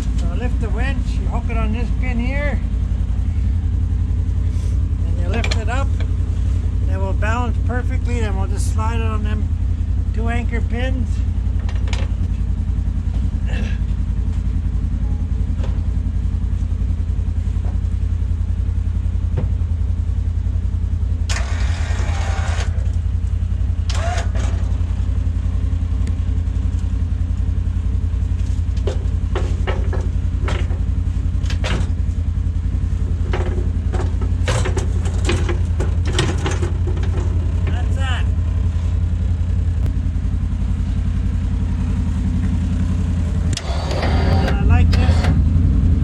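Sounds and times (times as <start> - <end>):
engine idling: 0.0 - 46.0
metal clanks and knocks: 5.2 - 6.1, 28.7 - 32.1, 33.0 - 37.9.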